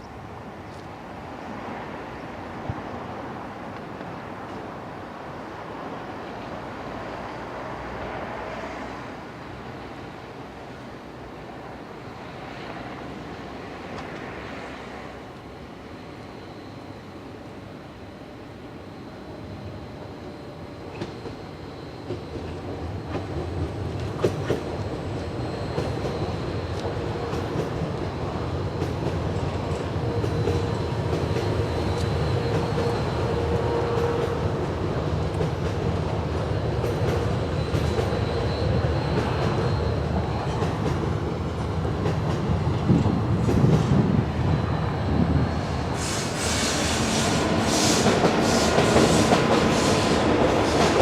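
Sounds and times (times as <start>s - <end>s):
train running past: 0.0s - 51.0s
faint high whine: 14.0s - 23.0s.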